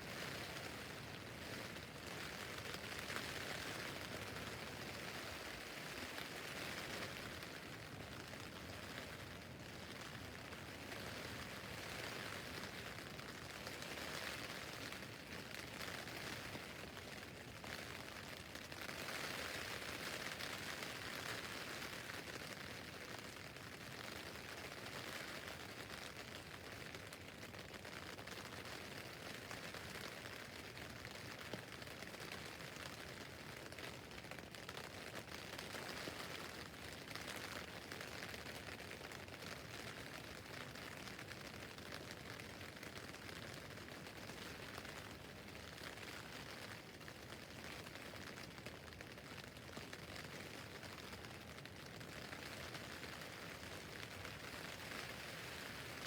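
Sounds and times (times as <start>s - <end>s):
rain on a tent roof: 0.0s - 56.0s.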